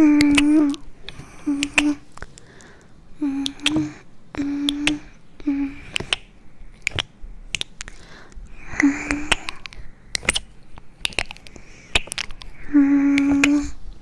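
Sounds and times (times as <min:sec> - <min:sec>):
sharp clicks and crunches: 0:05.8 - 0:08.0, 0:09.0 - 0:12.6.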